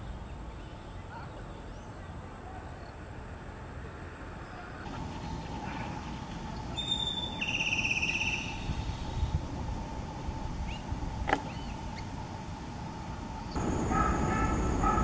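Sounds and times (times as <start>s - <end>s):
faint bird chirps: 4.4s - 9.4s
rapid bird trill: 5.1s - 9.3s.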